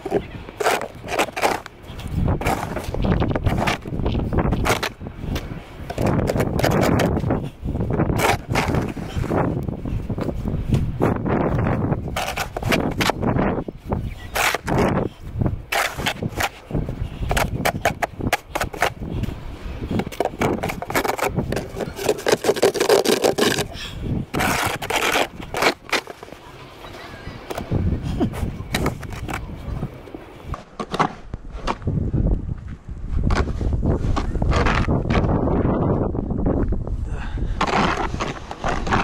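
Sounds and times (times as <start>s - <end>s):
snow shovel scraping snow: 24.4s - 26.2s.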